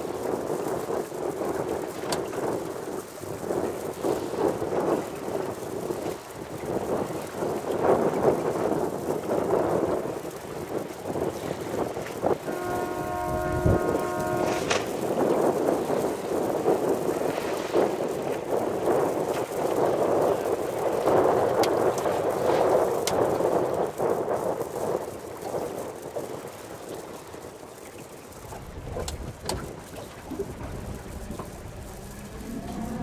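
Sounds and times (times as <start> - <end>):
wind buffeting microphone: 0.0 - 26.5, 28.1 - 33.0
boat and water noise: 0.0 - 33.0
horn blast: 12.4 - 15.6, 28.6 - 33.0.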